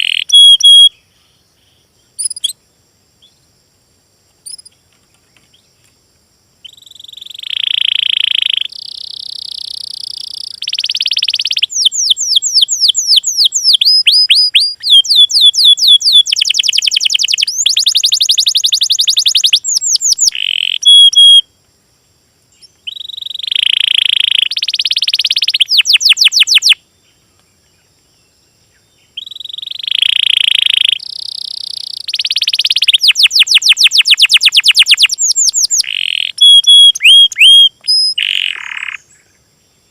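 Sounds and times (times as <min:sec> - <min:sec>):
songbird singing with trills: 0:00.0 - 0:03.5, 0:04.4 - 0:05.9, 0:06.6 - 0:21.5, 0:22.5 - 0:39.9.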